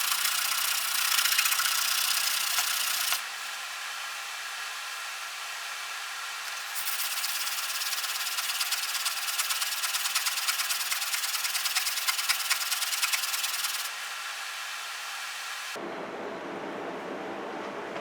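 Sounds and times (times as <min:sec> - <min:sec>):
plane iron rubbed on sharpening stone: 0:00.0 - 0:03.2, 0:06.6 - 0:13.9.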